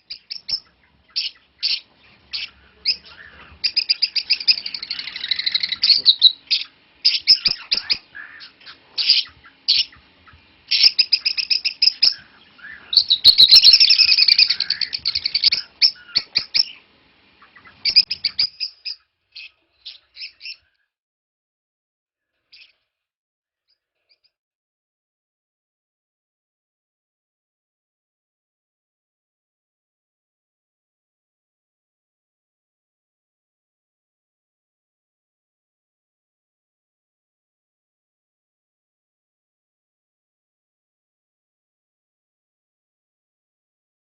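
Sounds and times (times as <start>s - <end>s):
parrots chirping: 0.0s - 20.7s.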